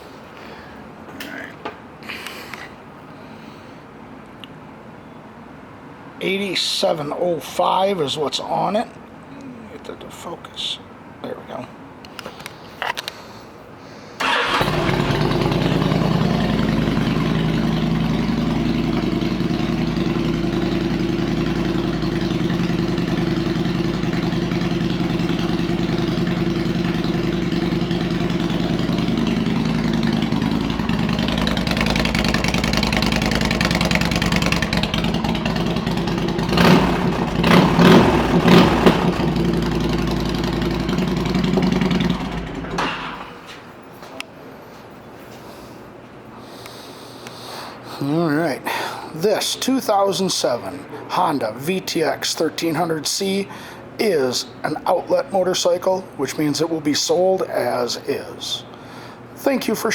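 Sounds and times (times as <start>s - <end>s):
motorcycle engine starting and idling: 14.2s - 43.6s.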